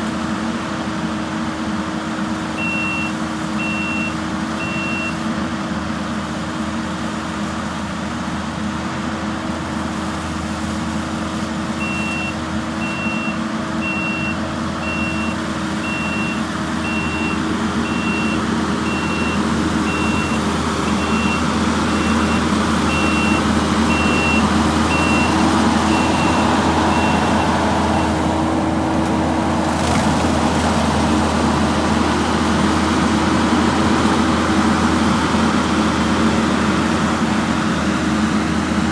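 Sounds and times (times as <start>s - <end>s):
skid steer running: 0.0s - 38.9s
backup alarm beeping: 2.6s - 5.2s, 11.8s - 28.2s.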